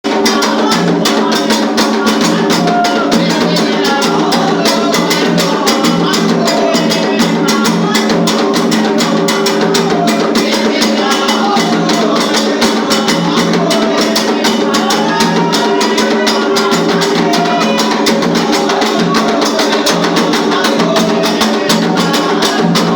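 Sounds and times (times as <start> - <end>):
hand drums and percussion: 0.0 - 22.9.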